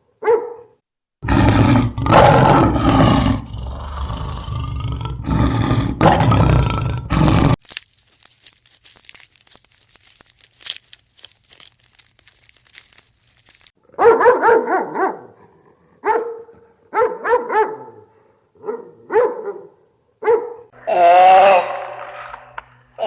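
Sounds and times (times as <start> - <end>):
dog yapping high barks: 0.2 - 0.8, 13.9 - 15.3, 16.0 - 18.0, 18.6 - 20.7
rustling: 7.2 - 13.8.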